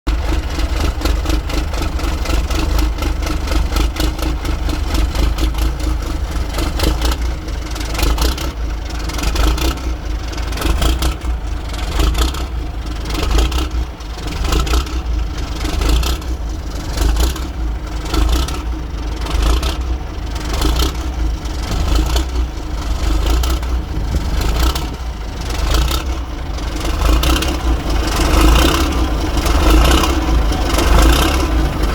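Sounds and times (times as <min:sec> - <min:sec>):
diesel engine rumbling: 0:00.0 - 0:31.9.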